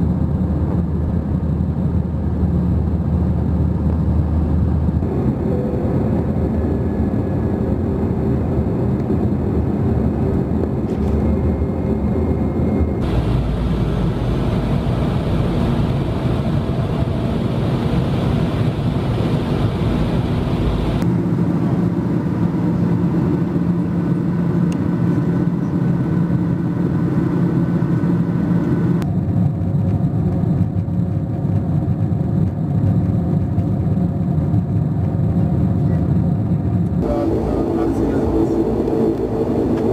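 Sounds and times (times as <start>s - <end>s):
faint engine hum: 0.0s - 39.9s
rush of engines and airflow: 0.0s - 39.9s.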